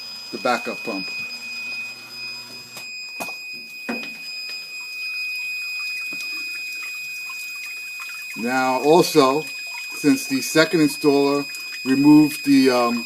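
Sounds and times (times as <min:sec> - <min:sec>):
battery alarm high tone: 0:00.0 - 0:13.0
faint water trickling: 0:03.7 - 0:13.0.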